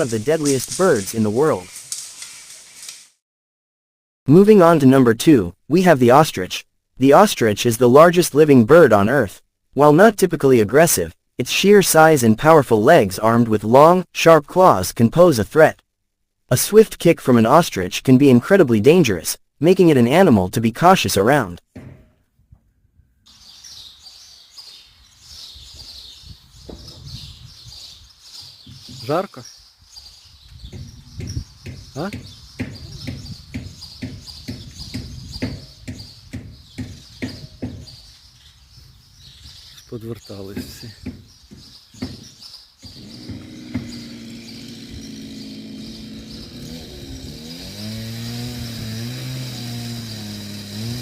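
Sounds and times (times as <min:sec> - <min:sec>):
small birds chirping: 0:23.3 - 0:47.6
small engine running: 0:42.9 - 0:51.0.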